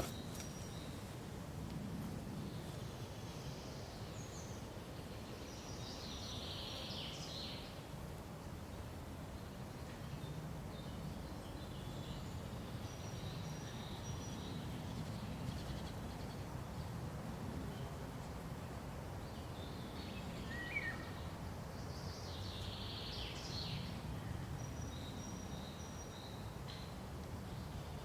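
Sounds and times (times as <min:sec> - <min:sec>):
small birds chirping: 0:00.0 - 0:01.2.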